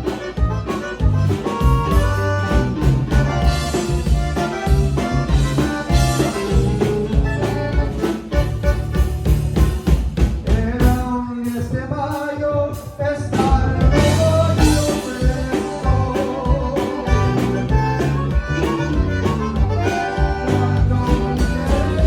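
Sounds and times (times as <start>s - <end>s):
live band playing: 0.0s - 22.0s
person singing: 10.5s - 22.0s.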